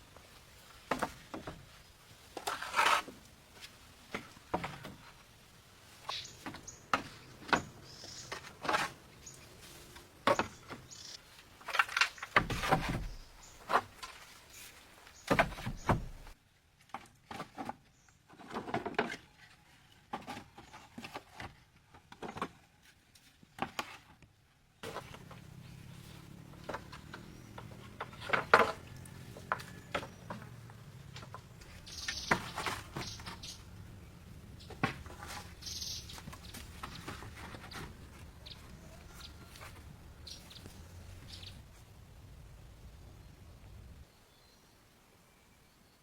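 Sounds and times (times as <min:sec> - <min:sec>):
objects knocking and clattering: 0:26.4 - 0:31.6.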